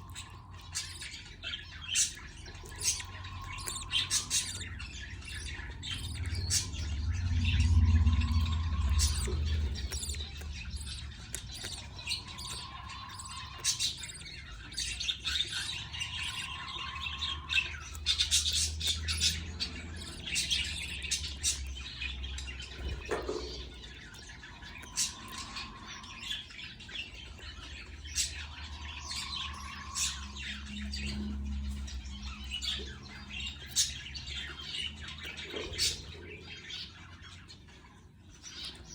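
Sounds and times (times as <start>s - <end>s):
budgerigars chirping and squawking: 0.0s - 38.9s
low rumble: 2.1s - 23.1s.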